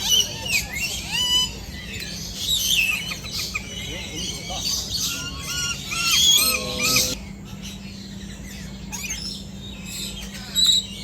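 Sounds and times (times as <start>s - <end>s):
birds calling and chirping: 0.0s - 11.0s.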